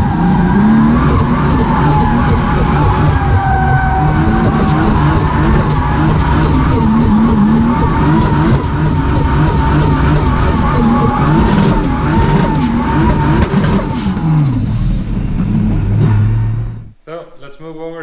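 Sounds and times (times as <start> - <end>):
tyres squealing: 0.0 - 14.3
car engine at high revs: 0.0 - 16.9.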